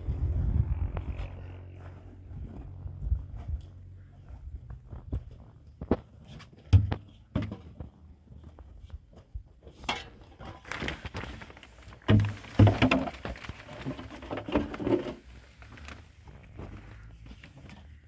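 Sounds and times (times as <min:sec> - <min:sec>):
rustling scraping noise: 0:09.7 - 0:18.0
hands handling hard objects: 0:10.5 - 0:16.0.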